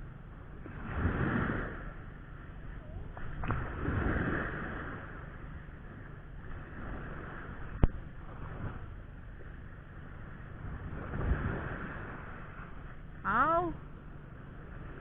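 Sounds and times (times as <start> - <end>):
wind and sea rush: 0.0 - 15.0
surf washing onto beach: 3.2 - 5.4.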